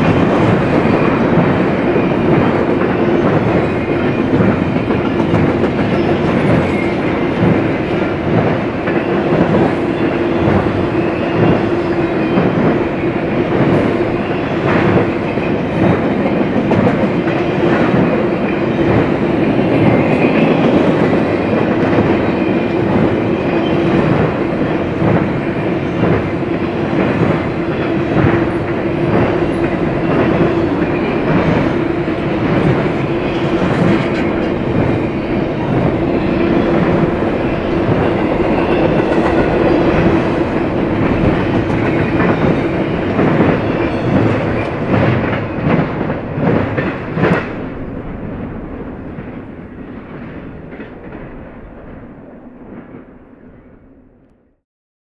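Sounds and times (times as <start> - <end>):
train wheels clacking on rail joints: 0.0 - 48.3.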